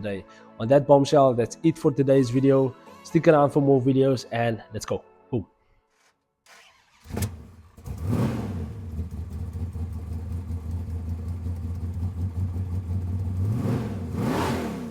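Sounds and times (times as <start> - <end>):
car exhaust revving and idling: 7.1 - 14.9.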